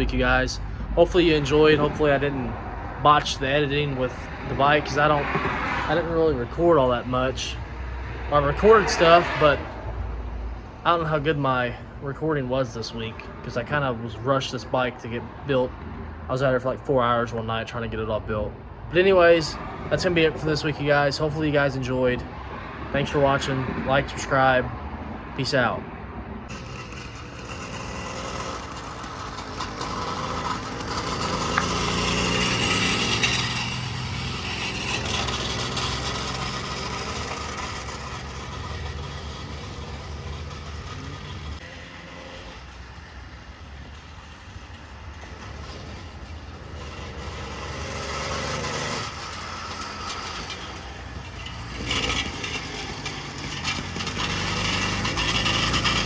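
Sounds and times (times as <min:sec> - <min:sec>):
engine running and revving: 0:26.5 - 0:56.0.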